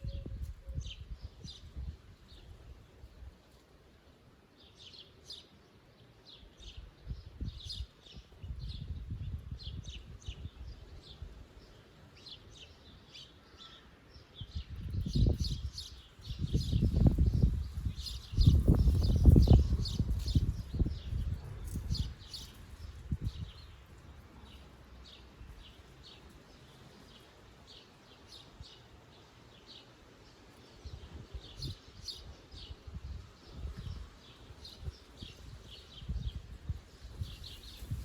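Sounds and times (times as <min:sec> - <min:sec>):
small songbirds chirping: 0:00.0 - 0:38.0
low rumbling wind gusts: 0:06.6 - 0:11.7, 0:14.4 - 0:25.7, 0:30.8 - 0:38.0.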